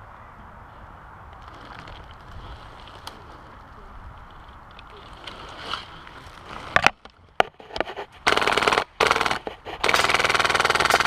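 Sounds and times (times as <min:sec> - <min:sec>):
airsoft rifle firing: 0:08.3 - 0:11.0.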